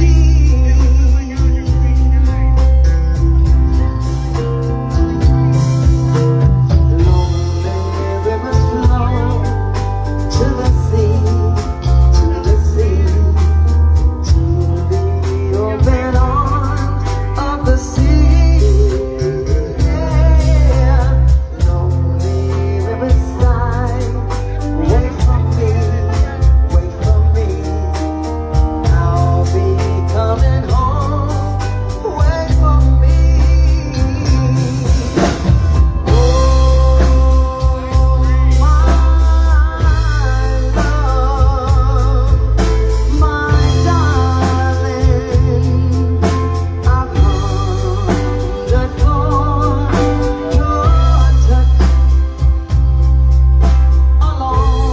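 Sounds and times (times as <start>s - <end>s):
bass and drum groove: 0.0s - 54.9s
live band playing: 0.0s - 54.9s
wavering melodic lead line: 0.0s - 54.9s.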